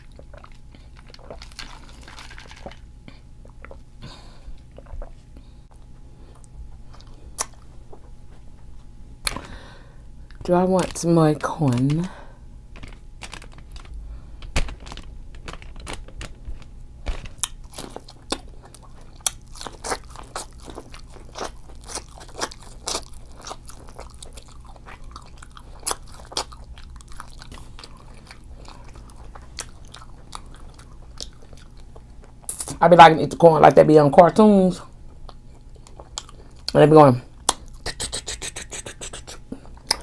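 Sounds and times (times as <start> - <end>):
crunchy chewing of corn: 0.0 - 3.9, 10.3 - 32.7, 35.2 - 40.0.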